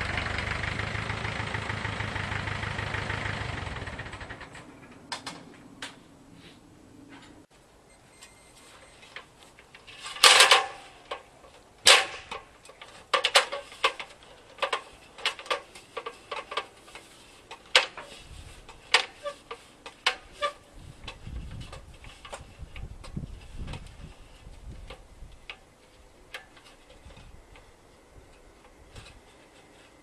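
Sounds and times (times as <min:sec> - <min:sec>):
metal clatter: 0:09.5 - 0:22.8
metal parts clicking and knocking: 0:09.6 - 0:18.0.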